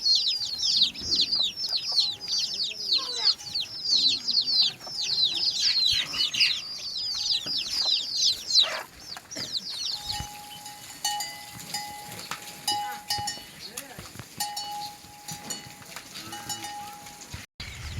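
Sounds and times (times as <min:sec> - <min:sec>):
chicks cheeping: 0:00.0 - 0:15.4.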